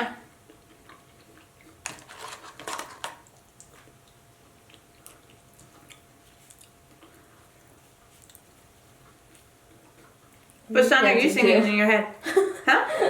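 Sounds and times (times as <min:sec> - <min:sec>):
crunchy eating noises: 0:00.0 - 0:10.7
wet chewing clicks: 0:00.4 - 0:02.0, 0:03.2 - 0:07.2, 0:08.0 - 0:10.6.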